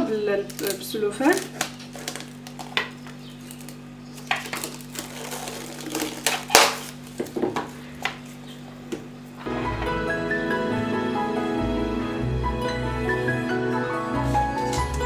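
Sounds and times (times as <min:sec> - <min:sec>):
cling film crinkling: 0:00.0 - 0:08.4.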